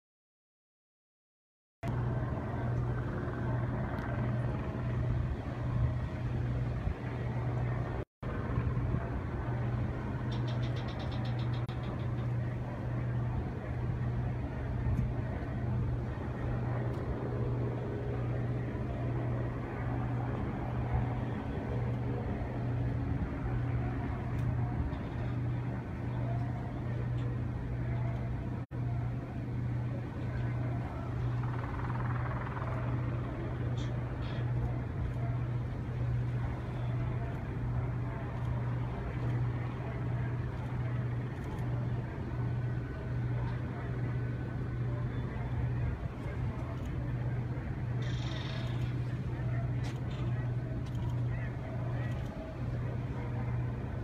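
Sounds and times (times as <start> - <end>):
engine humming: 1.8 - 54.0.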